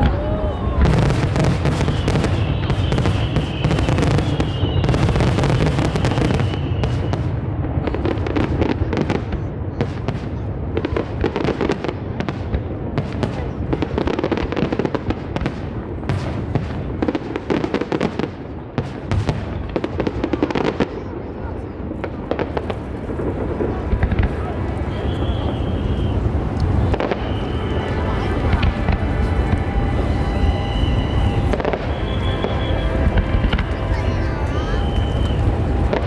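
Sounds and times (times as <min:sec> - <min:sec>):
fireworks crackling and popping: 0:00.0 - 0:36.0
heavy firework booms: 0:00.0 - 0:36.0
high whistling tone: 0:24.9 - 0:36.0.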